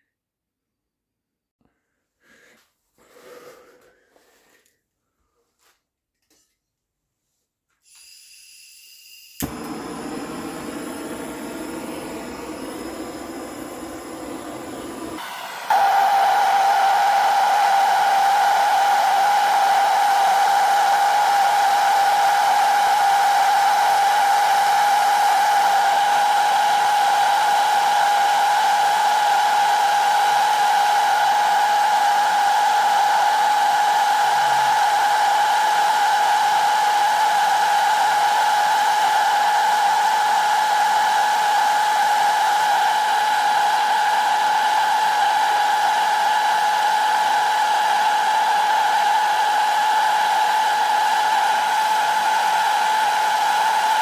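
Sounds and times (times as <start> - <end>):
power tool motor whining: 9.4 - 40.1.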